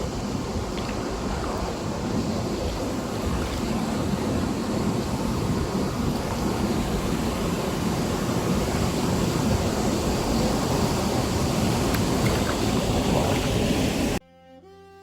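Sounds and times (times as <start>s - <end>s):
river water rushing: 0.0s - 14.2s
wind buffeting microphone: 0.0s - 14.2s.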